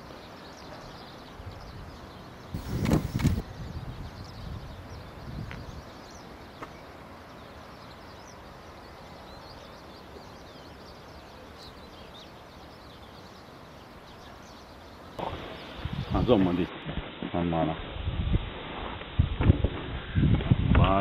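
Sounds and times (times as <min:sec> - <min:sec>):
small birds chirping: 0:00.0 - 0:16.7
steady background hiss: 0:00.0 - 0:19.2.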